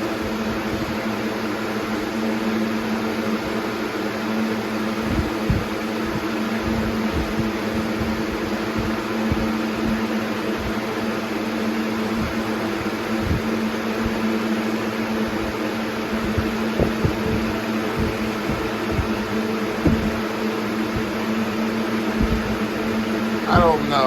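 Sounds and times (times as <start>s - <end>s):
box fan running: 0.0s - 24.0s
soft low thumps: 5.1s - 10.0s, 13.2s - 14.2s, 16.1s - 20.3s, 20.9s - 21.2s, 22.1s - 22.7s.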